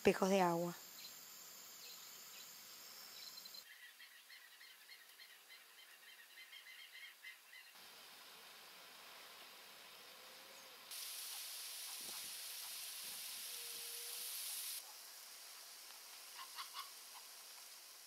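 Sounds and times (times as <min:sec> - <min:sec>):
faint outdoor ambience: 0:00.0 - 0:18.0
small bird chirping: 0:00.8 - 0:01.2, 0:01.8 - 0:07.8.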